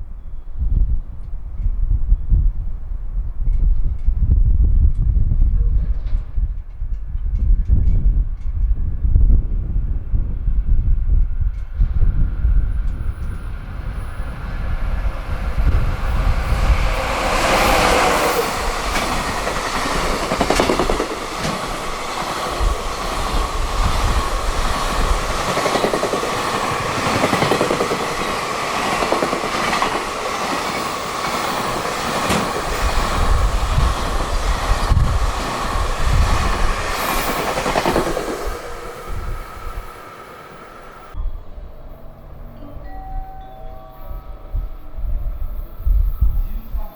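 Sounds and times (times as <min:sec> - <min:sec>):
wind buffeting microphone: 0:00.0 - 0:42.1, 0:44.0 - 0:46.9
freight train passing: 0:08.3 - 0:46.9
wheels clacking over rail joints: 0:15.6 - 0:40.3
steady ringing tone: 0:41.2 - 0:46.9.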